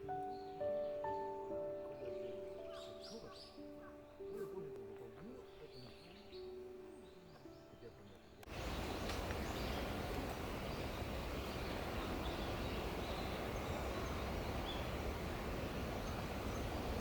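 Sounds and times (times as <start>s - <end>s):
low outdoor rush: 8.4s - 17.0s.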